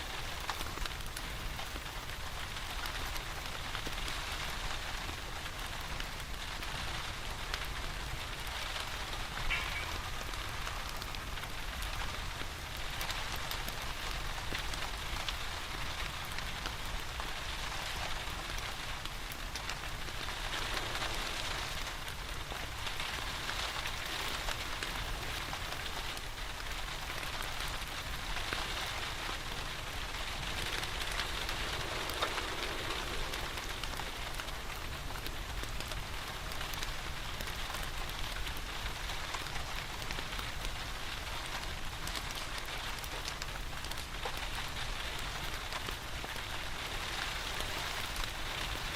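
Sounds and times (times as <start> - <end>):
fireplace crackling: 0.0 - 48.9
rain pattering: 0.0 - 48.9.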